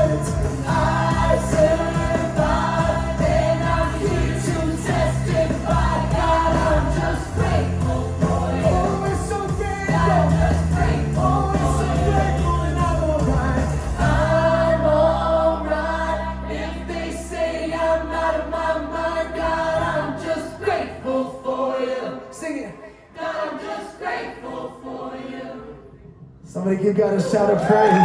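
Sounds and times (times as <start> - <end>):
bass: 0.0 - 21.1
worship band and singers: 0.0 - 28.0.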